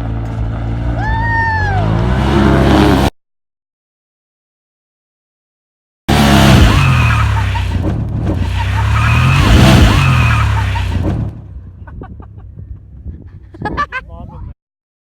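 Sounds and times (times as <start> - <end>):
engine revving: 0.0 - 3.1, 6.1 - 11.6
tires skidding: 6.1 - 11.4.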